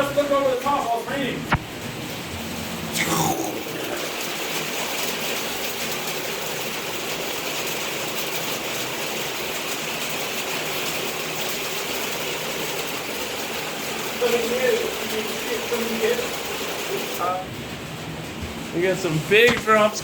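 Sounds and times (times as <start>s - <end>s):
heavy rain on roof: 3.7s - 20.0s
knock: 19.5s - 19.7s.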